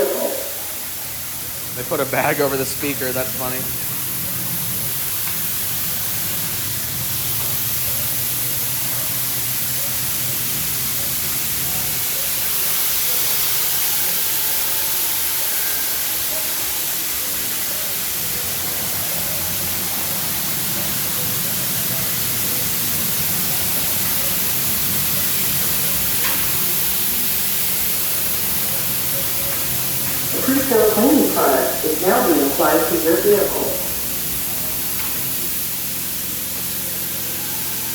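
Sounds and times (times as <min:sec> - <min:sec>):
hiss of car wash spray: 0:00.3 - 0:30.3, 0:33.9 - 0:37.9.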